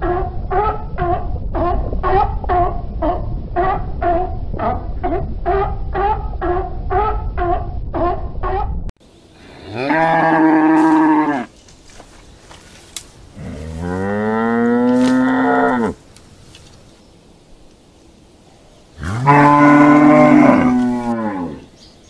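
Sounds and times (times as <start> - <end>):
animal yelps: 0.0 - 8.8
cow mooing: 9.4 - 11.5, 13.4 - 16.0, 19.0 - 21.7.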